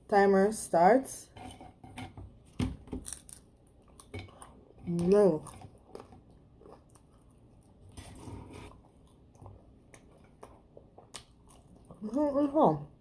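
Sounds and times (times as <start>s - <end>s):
person chewing food: 3.0s - 12.0s.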